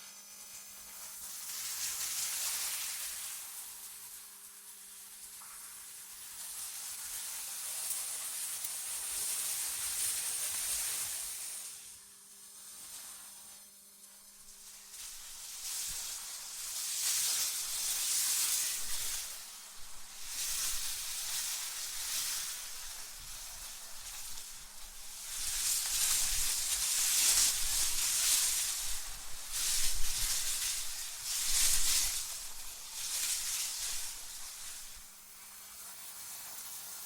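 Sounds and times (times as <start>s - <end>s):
wind gusts hissing: 18.6s - 35.1s.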